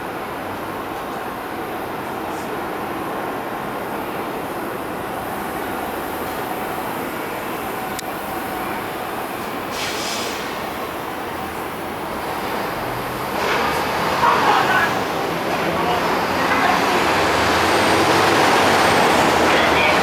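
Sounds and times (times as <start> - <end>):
train wheels rumbling on rails: 0.1 - 20.0
short hiss: 9.7 - 10.5.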